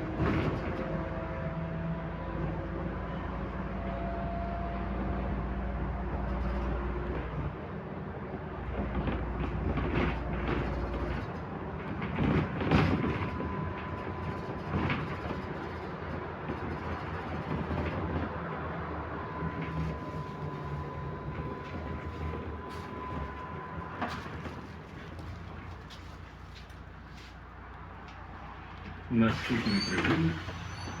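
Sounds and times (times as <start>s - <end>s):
rattles and knocks from bus body: 0.0s - 1.2s, 8.6s - 18.6s, 19.4s - 27.3s
bus engine drone: 0.0s - 31.0s
road noise: 0.0s - 31.0s.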